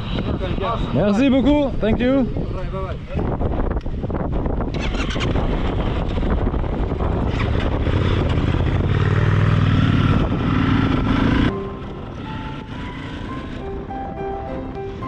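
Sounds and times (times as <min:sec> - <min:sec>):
wind noise: 0:00.0 - 0:15.0
motorcycle engine accelerating: 0:04.3 - 0:15.0.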